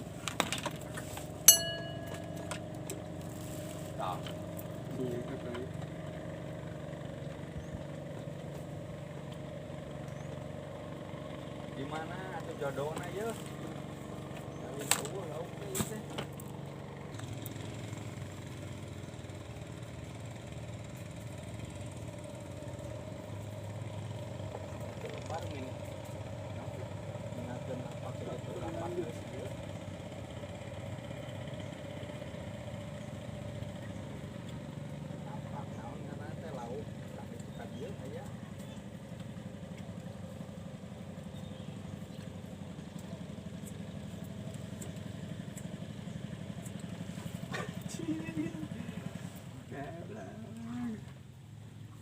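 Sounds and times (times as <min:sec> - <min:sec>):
small engine idling: 0:00.0 - 0:52.0.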